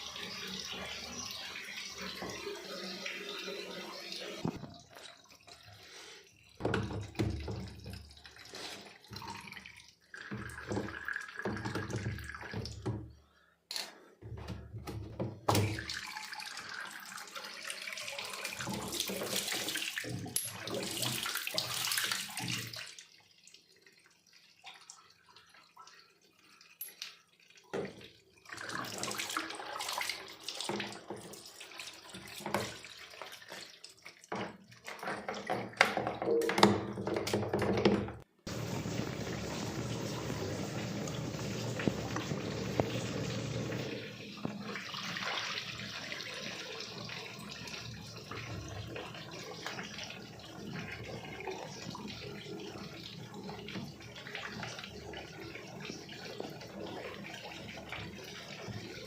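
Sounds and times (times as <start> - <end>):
water splashing in washing machine: 0.0 - 13.4, 14.2 - 59.0.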